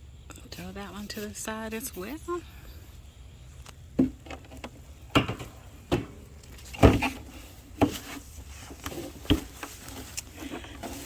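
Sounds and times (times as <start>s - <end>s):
thumps and rustles in straw: 6.5s - 11.0s.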